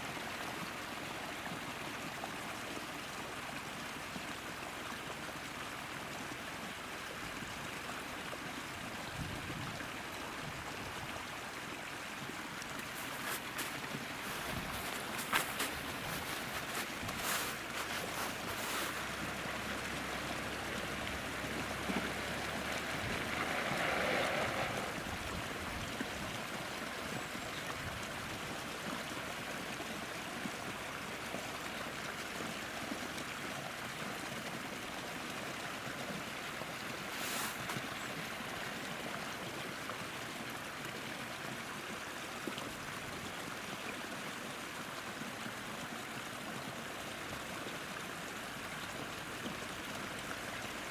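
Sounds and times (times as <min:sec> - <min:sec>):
stream of running water: 0:00.0 - 0:50.9.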